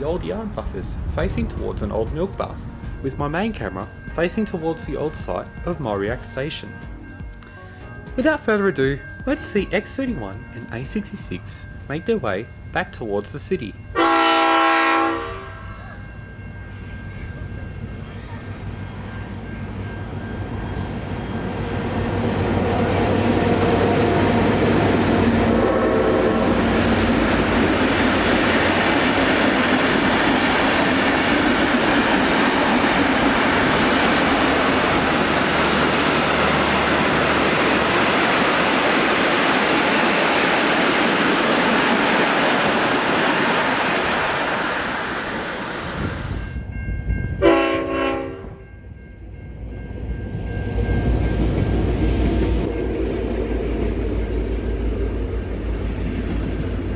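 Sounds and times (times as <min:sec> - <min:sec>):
diesel locomotives passing: 0:00.0 - 0:56.9
air horn blast: 0:14.0 - 0:15.7, 0:25.4 - 0:26.6, 0:47.4 - 0:48.6
train horn note: 0:14.0 - 0:15.9, 0:25.1 - 0:26.9, 0:47.4 - 0:48.6.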